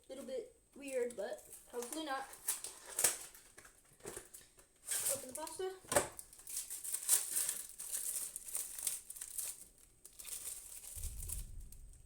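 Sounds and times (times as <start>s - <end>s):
packaging crinkling: 0.9s - 12.0s
thunder rumble: 11.0s - 12.0s.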